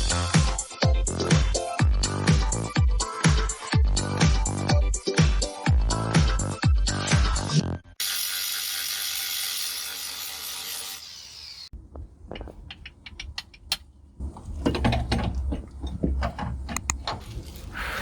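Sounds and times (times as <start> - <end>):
clicks and knocks on metal parts: 12.4 - 13.9.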